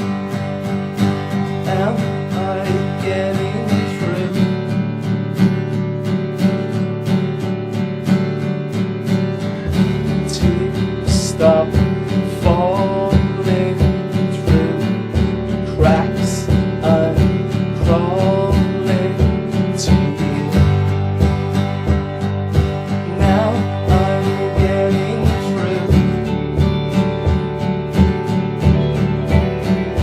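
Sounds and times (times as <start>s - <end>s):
acoustic guitar strumming: 0.0s - 30.0s
steady low beat: 9.5s - 30.0s
melody line: 21.9s - 30.0s.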